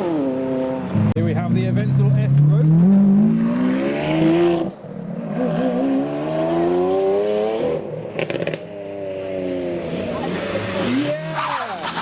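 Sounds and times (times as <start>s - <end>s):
car engine accelerating hard: 0.0s - 12.0s
exhaust cracks: 9.7s - 12.0s.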